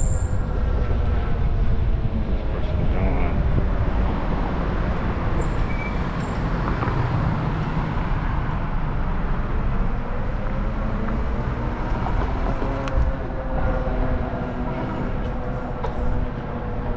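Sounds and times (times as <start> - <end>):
wind rushing over microphone: 0.0 - 16.9
brief high squeal: 5.4 - 6.3.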